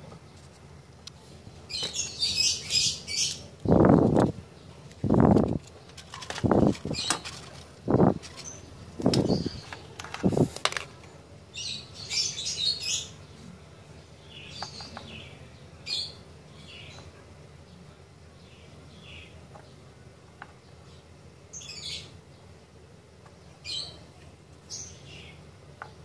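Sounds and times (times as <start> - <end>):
birds calling: 1.6 - 26.0
high bird chirping: 1.7 - 4.0.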